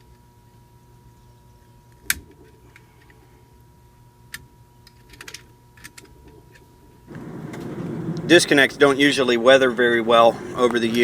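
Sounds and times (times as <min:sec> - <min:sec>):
faint steady tone: 0:07.1 - 0:11.0
steady rushing noise: 0:07.1 - 0:11.0.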